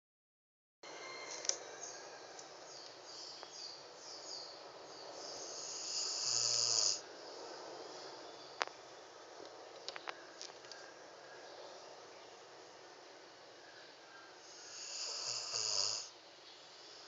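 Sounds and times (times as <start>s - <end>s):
dog snoring: 5.4s - 7.0s, 14.5s - 16.1s.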